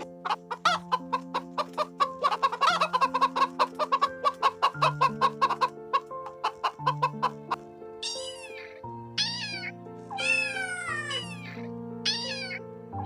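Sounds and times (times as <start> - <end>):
chickens clucking: 0.0 - 9.6
background music with held notes: 0.0 - 13.0
pitch-bending chicken calls: 0.3 - 12.6.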